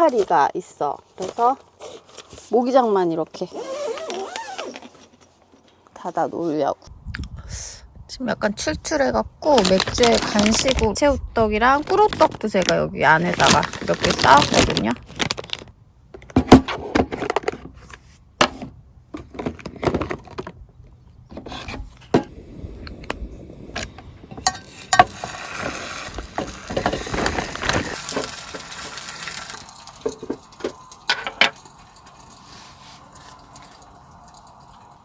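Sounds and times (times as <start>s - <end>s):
snack packages and cans rattling: 9.5s - 18.1s, 19.2s - 20.6s, 23.7s - 35.0s.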